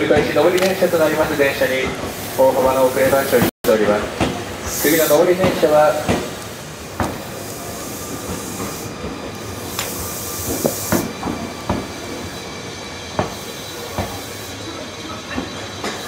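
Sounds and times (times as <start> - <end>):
train wheels knocking over rail joints: 0.0 - 0.8, 5.3 - 7.3, 8.2 - 12.0, 13.1 - 14.3, 15.3 - 16.0
burst of hiss: 0.6 - 3.5, 4.6 - 12.1, 13.1 - 14.7.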